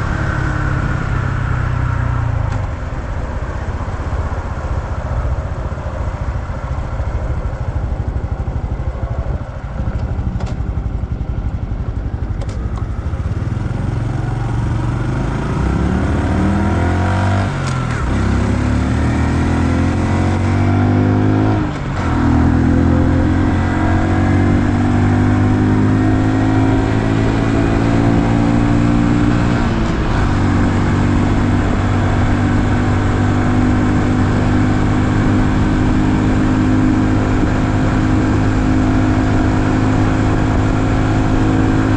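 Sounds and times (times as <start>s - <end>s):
motorcycle engine revving and shifting: 12.0s - 41.9s.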